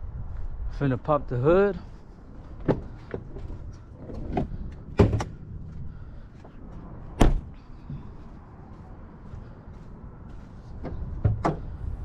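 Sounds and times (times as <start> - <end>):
hood latch clicks and knocks: 4.1 - 5.4.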